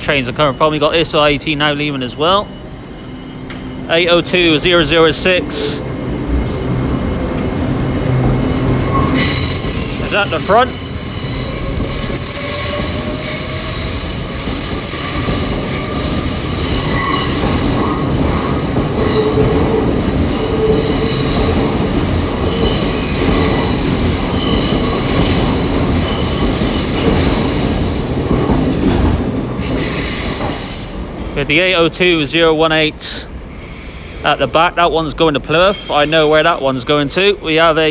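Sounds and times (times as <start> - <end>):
train rumble: 0.0 - 37.9
train wheels squealing: 2.2 - 4.5, 8.5 - 31.3, 33.1 - 34.3, 35.5 - 36.9.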